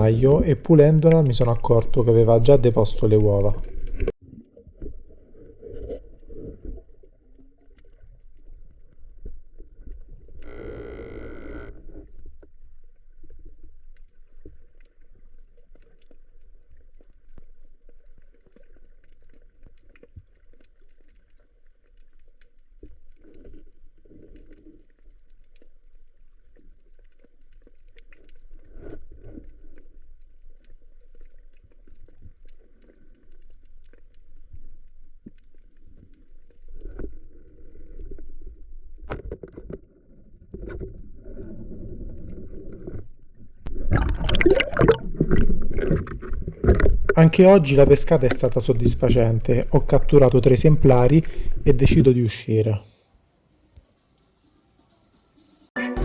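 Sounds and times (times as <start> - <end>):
underwater rumble of moving water: 0.0 - 52.2
brief pitched sound: 55.8 - 56.0.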